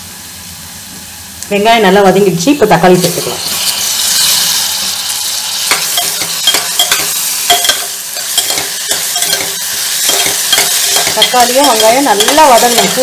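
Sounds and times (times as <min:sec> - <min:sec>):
vegetables sizzling in hot oil: 0:00.2 - 0:13.0
metal ladle scraping pot: 0:05.7 - 0:13.0.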